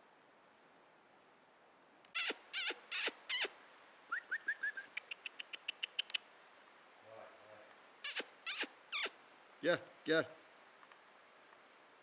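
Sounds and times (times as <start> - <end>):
bird calling harshly: 2.1 - 6.2, 8.0 - 9.2.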